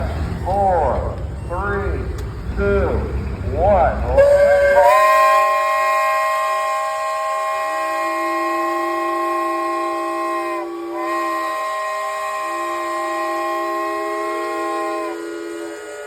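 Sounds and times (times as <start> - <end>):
steam whistles blowing chord: 4.2 - 16.0.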